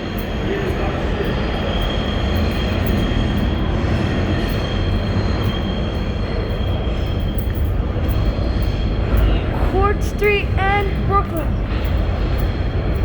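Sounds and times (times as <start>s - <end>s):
subway train wheels rumbling: 0.0s - 13.0s
high wheel squeal: 0.8s - 9.5s.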